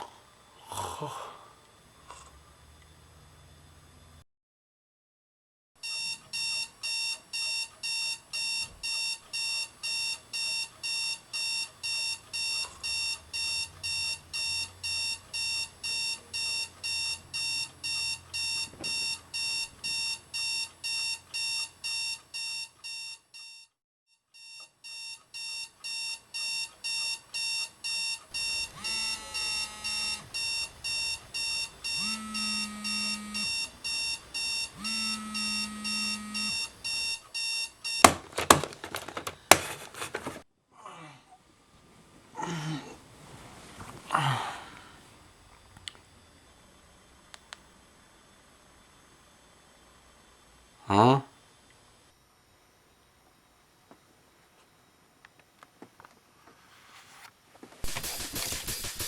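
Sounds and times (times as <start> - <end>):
alarm clock beeping: 5.8 - 23.7, 24.4 - 40.4
held tones: 26.9 - 37.2, 37.8 - 40.4.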